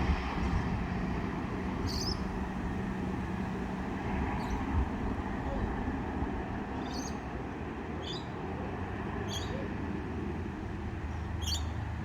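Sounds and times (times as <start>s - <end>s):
bus engine rumble: 0.0s - 6.7s.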